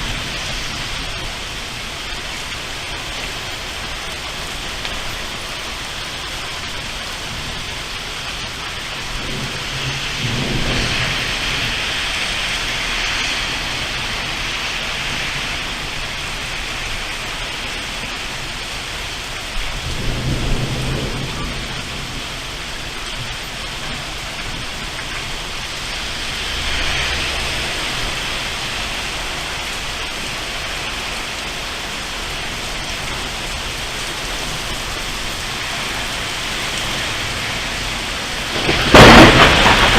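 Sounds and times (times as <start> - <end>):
thunder rumbling: 0.0 - 17.4, 18.2 - 39.9
heavy rain: 0.0 - 39.9
sharp thunder crack: 9.1 - 12.4, 19.8 - 22.4, 38.5 - 39.9.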